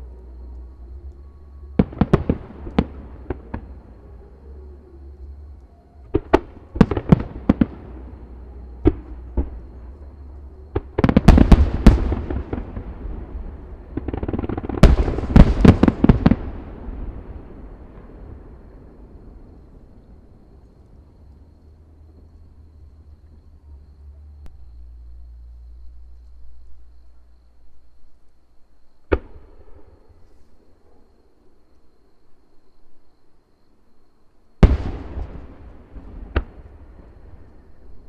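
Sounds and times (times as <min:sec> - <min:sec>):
fireworks bangs: 0:10.7 - 0:18.1, 0:34.6 - 0:37.0
fireworks crackling: 0:10.8 - 0:18.0.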